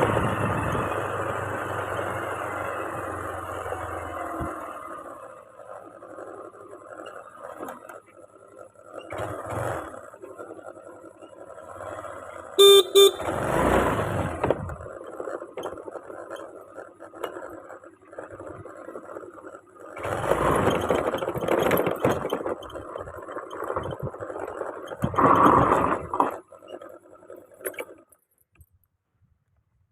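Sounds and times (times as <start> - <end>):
road noise: 0.0 - 29.7
vehicle horn beeps: 12.6 - 13.4.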